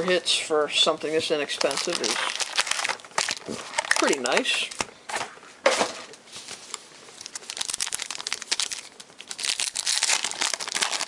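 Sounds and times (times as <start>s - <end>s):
foil wrapper crinkling: 1.4s - 4.8s, 6.5s - 11.0s.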